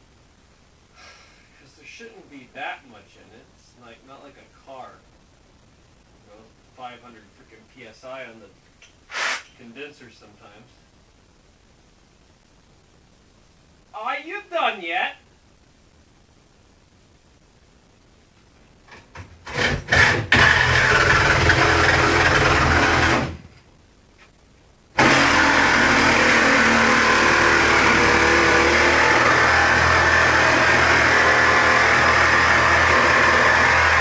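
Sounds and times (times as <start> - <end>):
electric power tool running: 19.5 - 23.4, 25.0 - 34.0.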